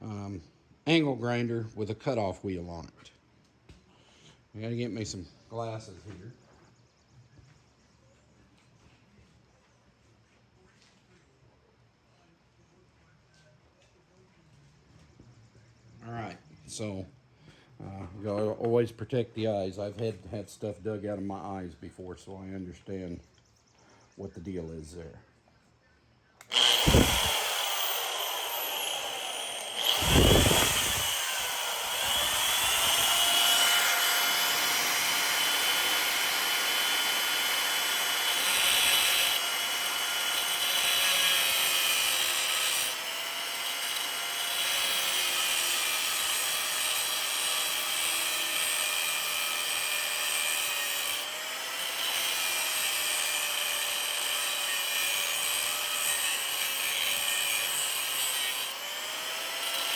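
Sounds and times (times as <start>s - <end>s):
angle grinder cutting metal: 26.4s - 59.9s.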